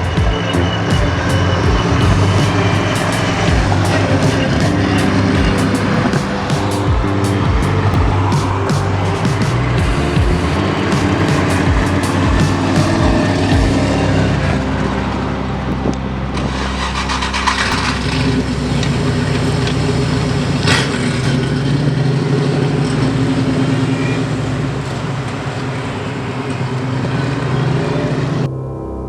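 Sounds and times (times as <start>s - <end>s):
car engine running: 0.0s - 28.4s.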